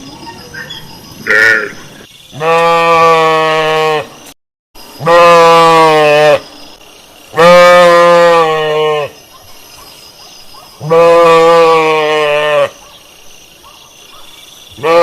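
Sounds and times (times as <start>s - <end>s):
sheep bleating: 2.4s - 4.1s, 5.0s - 6.4s, 7.4s - 9.2s, 10.8s - 12.7s, 14.8s - 15.0s.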